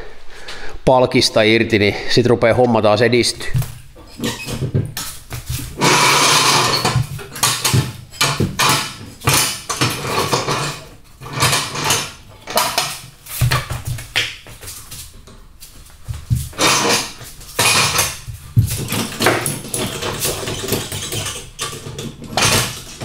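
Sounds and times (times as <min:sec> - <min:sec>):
metallic clanks of tools and parts: 0:04.0 - 0:14.3, 0:16.2 - 0:23.0.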